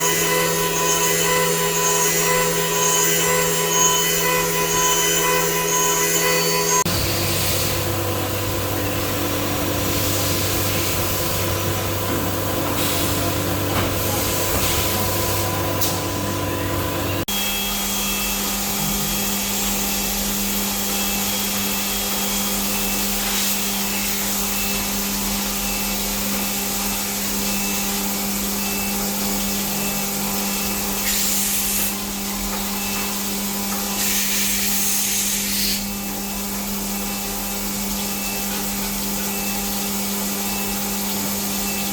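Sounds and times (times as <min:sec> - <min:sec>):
machinery motor and spindle hum: 0:00.0 - 0:18.8.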